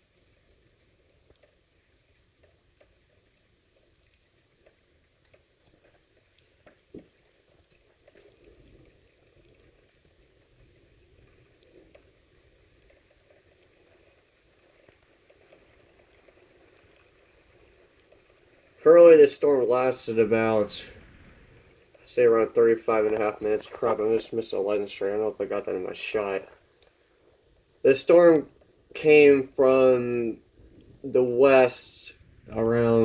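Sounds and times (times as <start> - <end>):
small ticks: 0.0 - 18.8, 26.1 - 29.0
soft steady hiss: 0.0 - 33.0
distant thunder rumble: 18.8 - 26.3.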